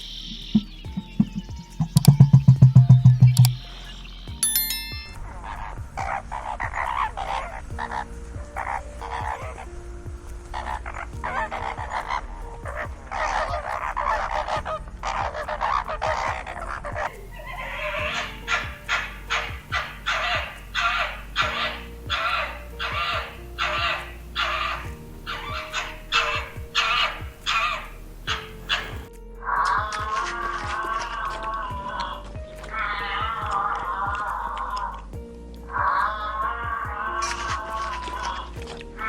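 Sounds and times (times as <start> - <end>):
faint background music: 0.0 - 39.0
harsh animal calls: 10.5 - 35.1, 35.7 - 39.0.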